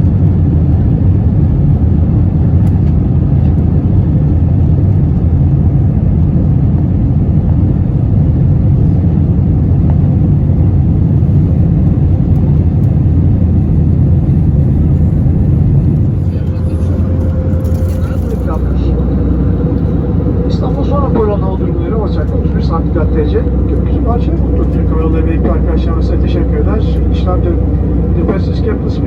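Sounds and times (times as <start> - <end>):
airplane cabin engine drone: 0.0 - 29.0
airflow around fuselage: 1.8 - 29.0.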